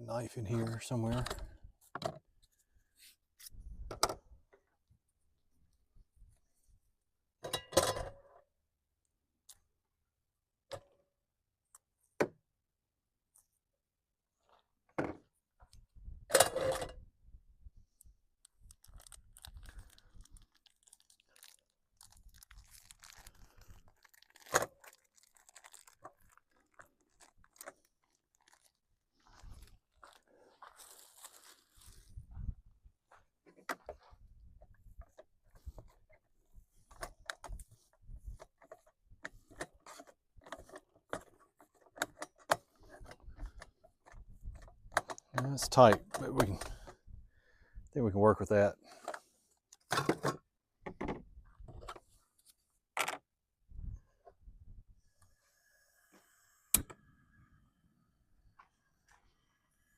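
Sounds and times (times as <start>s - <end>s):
rustling: 18.4s - 32.2s.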